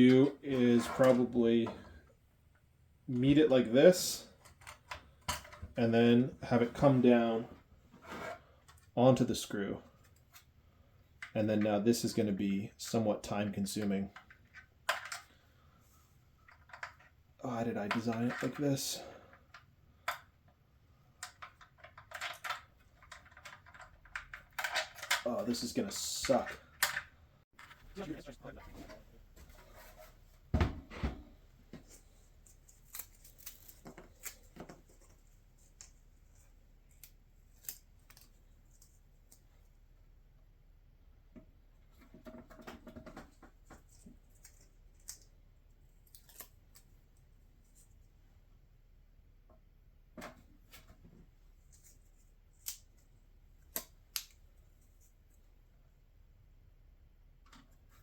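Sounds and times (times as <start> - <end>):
plastic parts clicking: 21.2 - 25.5.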